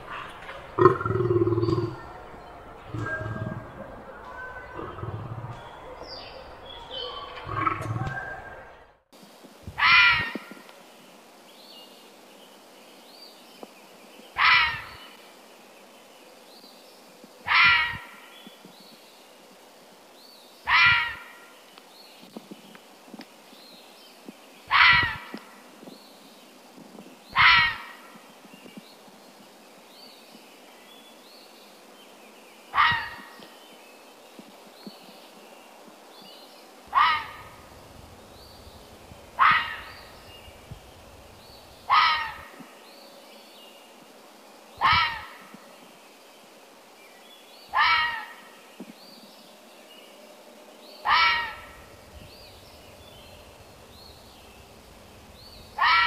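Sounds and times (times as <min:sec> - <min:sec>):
faint high chirps: 0:00.8 - 0:08.8.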